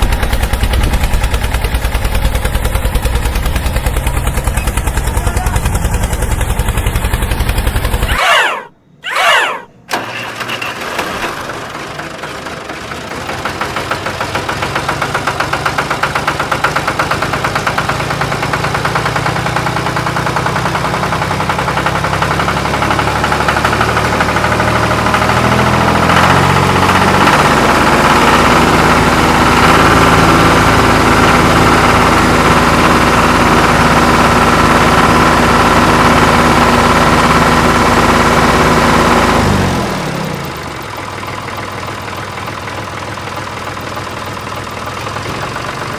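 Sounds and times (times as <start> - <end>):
engine knocking: 0.0 - 45.9
high whine: 7.8 - 9.8.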